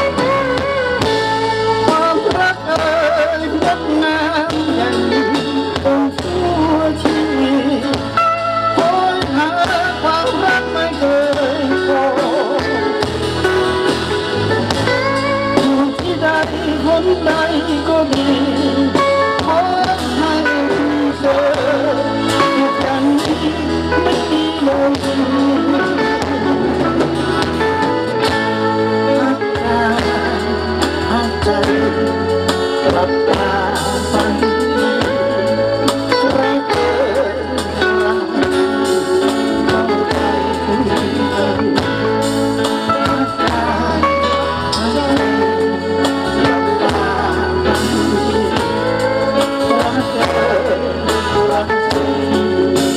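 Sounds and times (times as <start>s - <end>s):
bass line: 0.0s - 52.9s
guitar: 0.0s - 52.9s
live band playing: 0.0s - 52.9s
person singing: 0.0s - 52.9s.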